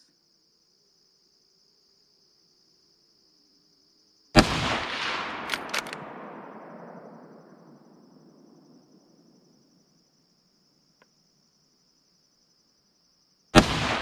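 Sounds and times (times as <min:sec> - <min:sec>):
crickets chirping: 0:00.0 - 0:14.0
rifle shot with echo: 0:04.4 - 0:08.6, 0:13.6 - 0:14.0
sharp clicks: 0:05.0 - 0:06.1.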